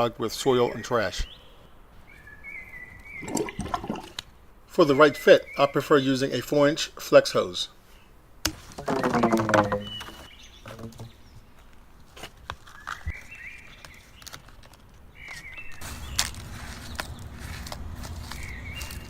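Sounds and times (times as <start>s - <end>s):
bird chirping: 0.5s - 4.2s, 8.8s - 11.6s, 12.7s - 14.4s, 15.1s - 19.0s
sharp knocks and taps: 8.4s - 11.1s.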